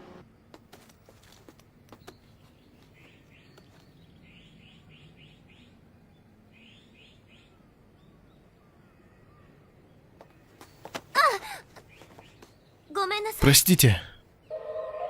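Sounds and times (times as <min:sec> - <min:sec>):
bird chirping: 0:01.9 - 0:10.8.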